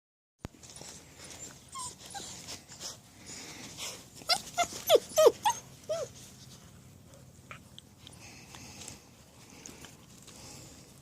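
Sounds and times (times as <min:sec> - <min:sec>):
puppies whining: 0:00.6 - 0:03.0, 0:03.7 - 0:06.6.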